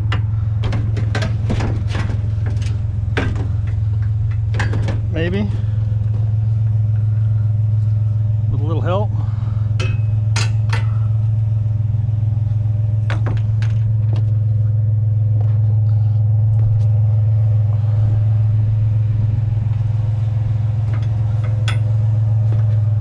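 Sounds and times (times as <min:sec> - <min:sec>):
scrap metal clanking: 0:00.0 - 0:07.2, 0:20.8 - 0:23.0
truck engine idling: 0:00.0 - 0:23.0.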